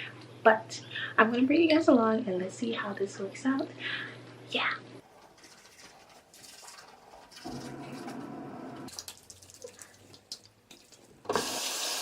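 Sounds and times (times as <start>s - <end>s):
tap water running into sink: 11.3s - 12.0s.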